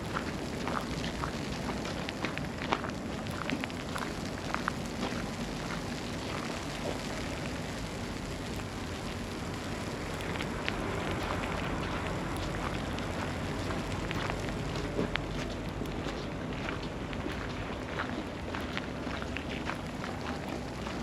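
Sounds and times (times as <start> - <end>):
small irregular ticks and crackles: 0.0 - 21.0
steady hiss of snowstorm: 0.0 - 21.0.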